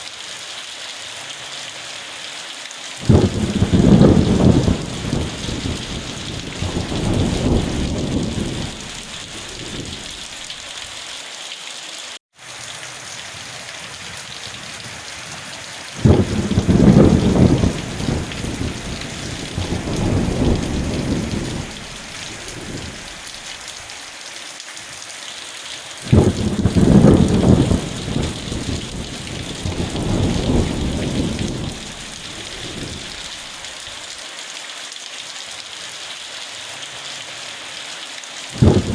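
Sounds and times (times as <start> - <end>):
heavy rain: 0.0 - 38.9
low thunder rolling: 3.0 - 10.5, 16.0 - 23.4, 26.1 - 33.6, 38.6 - 38.9.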